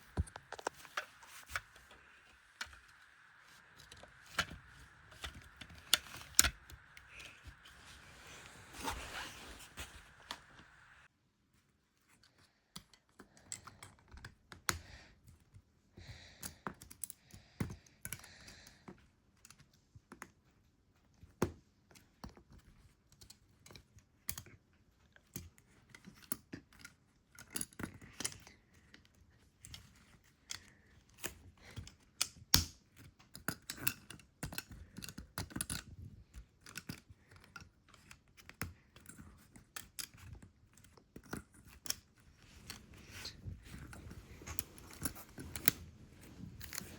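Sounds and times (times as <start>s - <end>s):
brief rustle: 0.0s - 11.1s.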